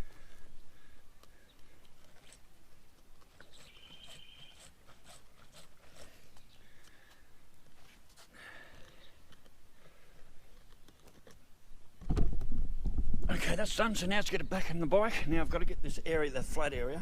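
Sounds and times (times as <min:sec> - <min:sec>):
bird calling: 0:03.3 - 0:04.8.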